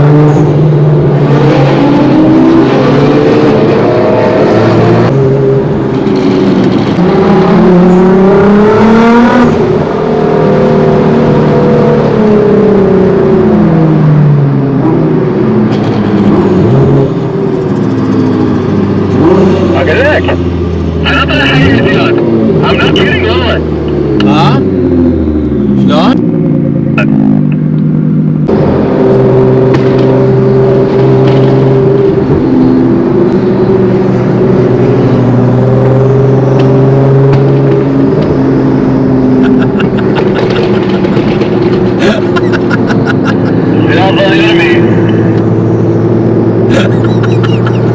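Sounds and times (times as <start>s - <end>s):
car engine running: 14.4s - 47.9s.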